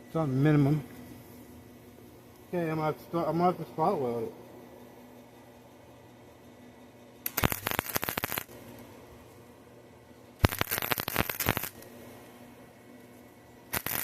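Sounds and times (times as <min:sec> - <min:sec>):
faint steady hum: 0:00.0 - 0:14.0
arc welder crackle: 0:07.2 - 0:09.4, 0:10.3 - 0:12.1, 0:13.6 - 0:14.0.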